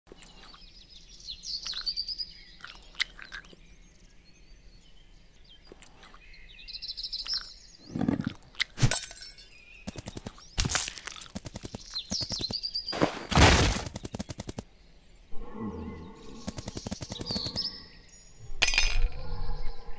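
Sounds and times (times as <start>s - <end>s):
birds chirping: 0.1s - 19.9s
rapid clicks: 9.9s - 12.6s, 13.7s - 14.6s, 16.4s - 17.7s
cartoon thumps and crunching hits: 9.9s - 14.6s.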